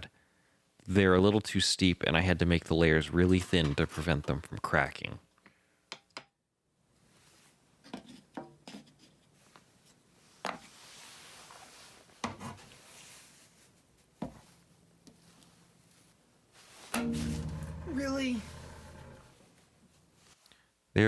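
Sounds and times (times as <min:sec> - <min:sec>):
faint rubbing: 0:16.6 - 0:19.4.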